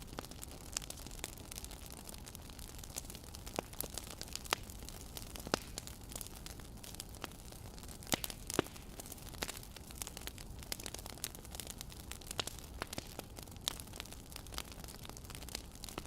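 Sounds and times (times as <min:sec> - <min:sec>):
fire popping and snapping: 0:00.0 - 0:16.0
low fire hiss: 0:00.0 - 0:16.0.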